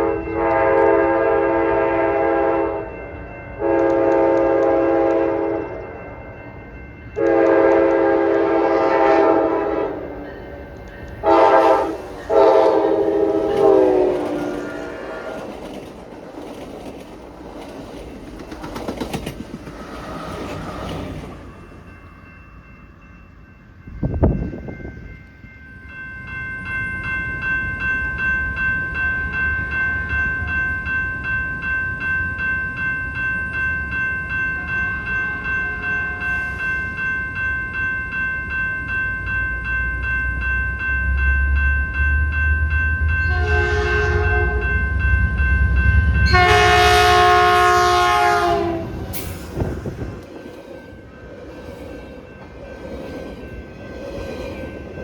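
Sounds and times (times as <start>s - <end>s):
locomotive horn: 0.0s - 2.9s, 3.6s - 5.8s, 7.2s - 10.2s, 11.2s - 15.6s, 43.3s - 44.8s, 46.2s - 50.3s
approaching train rumble: 0.0s - 55.0s
railroad crossing bell ringing: 0.0s - 55.0s
train rolling by: 0.0s - 55.0s.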